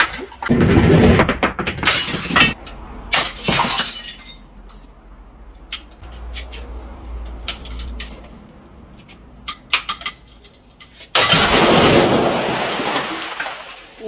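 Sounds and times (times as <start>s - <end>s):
glass bottle smashing: 1.2s - 4.6s, 11.1s - 14.0s.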